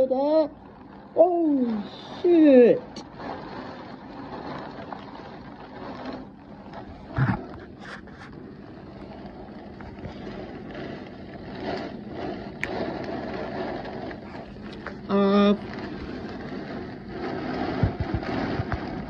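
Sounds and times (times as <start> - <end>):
heavy rain pouring: 0.0 - 19.0
gusting wind: 6.9 - 19.0.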